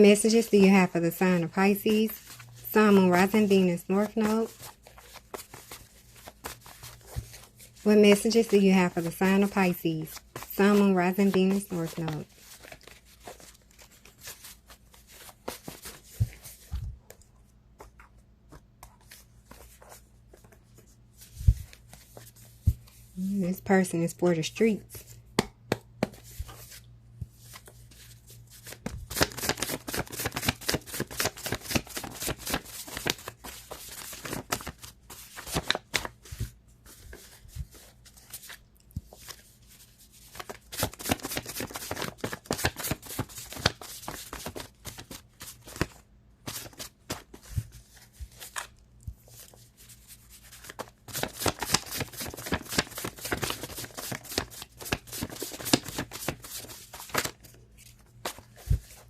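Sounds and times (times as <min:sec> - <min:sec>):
cards being shuffled: 0:01.6 - 0:23.1, 0:25.0 - 0:59.0.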